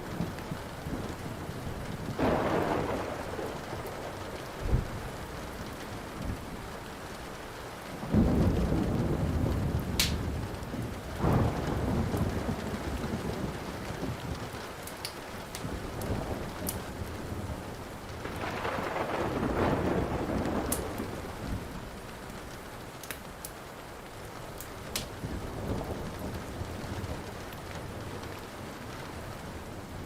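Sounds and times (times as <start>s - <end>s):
rolling thunder: 0.0s - 6.8s, 8.0s - 14.6s, 15.6s - 22.6s
steady rain: 0.0s - 30.0s
wood fire crackling: 8.1s - 30.0s
sharp fire pops: 10.0s - 10.3s, 24.9s - 25.2s.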